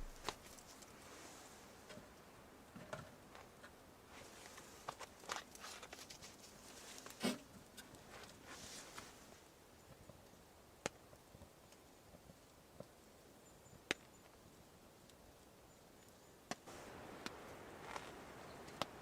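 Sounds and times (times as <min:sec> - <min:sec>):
wood fire crackling and popping: 0:00.0 - 0:00.6, 0:16.0 - 0:19.0
faint hiss: 0:00.0 - 0:02.8, 0:14.7 - 0:19.0.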